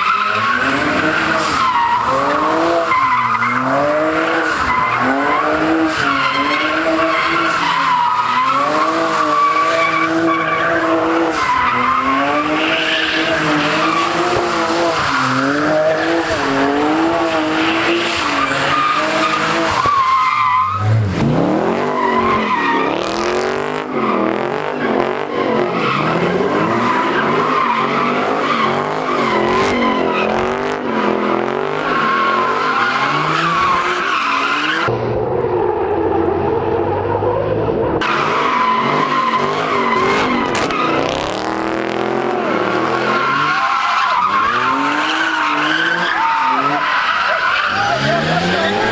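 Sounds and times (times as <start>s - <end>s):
tyres screeching: 0.0s - 23.8s, 38.0s - 48.9s
car engine revving: 0.0s - 35.0s, 38.0s - 48.9s.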